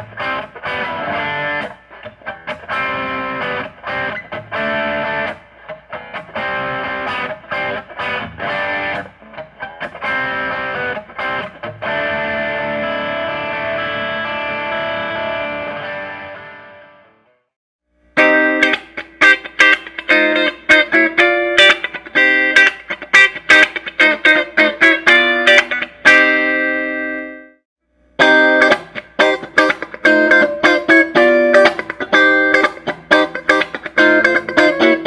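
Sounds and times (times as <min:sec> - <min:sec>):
electric guitar chords: 0:00.0 - 0:17.4, 0:18.2 - 0:27.6, 0:28.2 - 0:35.0.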